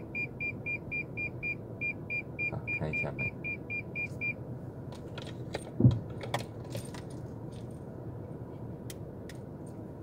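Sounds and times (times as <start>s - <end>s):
car door thump: 5.7s - 6.1s.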